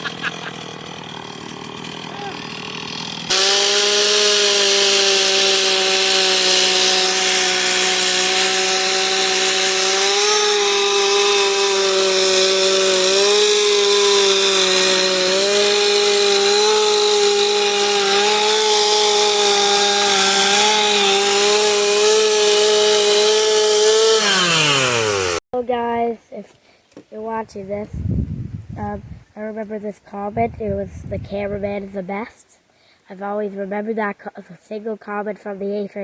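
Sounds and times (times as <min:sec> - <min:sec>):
chainsaw carving wood: 0:00.0 - 0:25.4.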